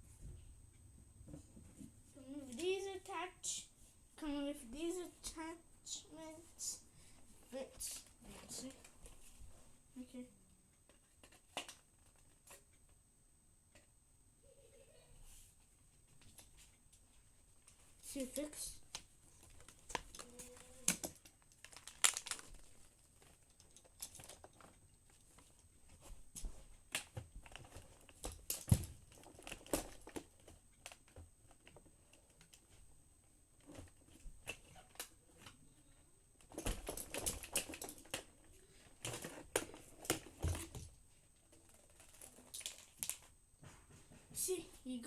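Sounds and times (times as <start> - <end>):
plastic parts clicking and rustling: 10.9 - 12.8, 17.6 - 32.8, 33.6 - 35.6, 36.4 - 43.4.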